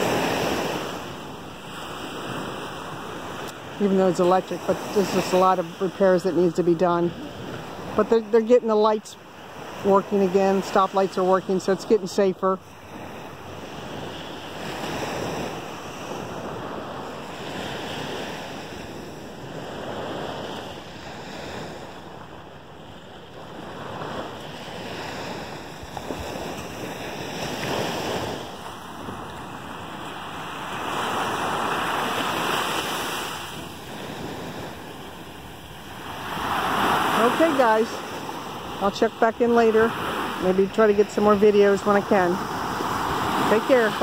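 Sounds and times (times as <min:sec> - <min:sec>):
surf breaking on beach: 0:00.0 - 0:08.9, 0:23.4 - 0:44.0.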